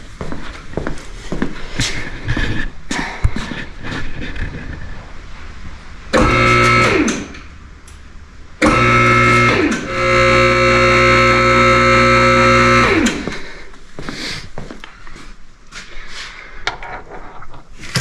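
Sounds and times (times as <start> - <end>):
electric lift motor humming: 6.1 - 7.5, 8.6 - 13.6.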